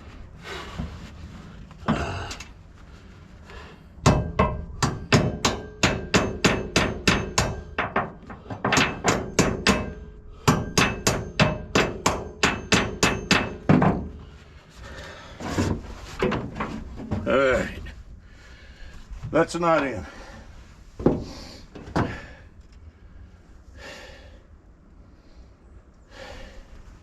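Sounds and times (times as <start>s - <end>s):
hammer striking metal: 4.0s - 14.1s.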